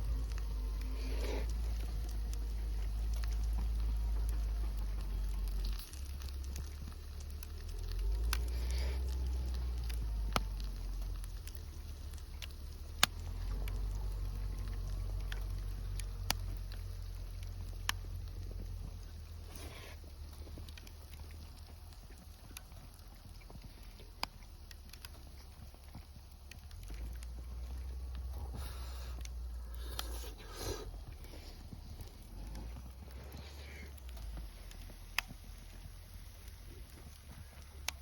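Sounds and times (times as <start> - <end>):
campfire crackling and popping: 0.0 - 38.0
steady low rumble: 0.0 - 38.0
faint hiss: 26.9 - 38.0.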